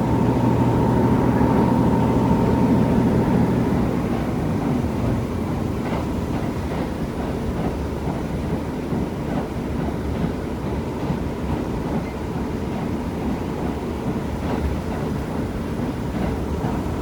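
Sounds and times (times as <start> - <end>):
diesel engine hum: 0.0 - 6.0.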